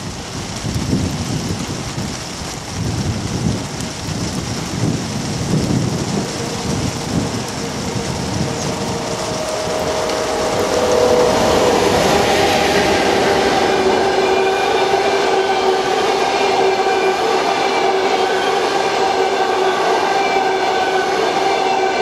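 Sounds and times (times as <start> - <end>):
heavy rain falling: 0.0 - 22.0
electric locomotive hum: 5.1 - 22.0.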